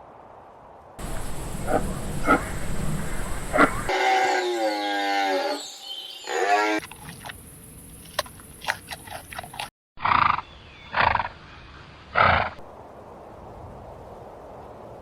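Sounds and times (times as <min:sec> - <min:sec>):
rough breathy animal calls: 0:01.0 - 0:06.8.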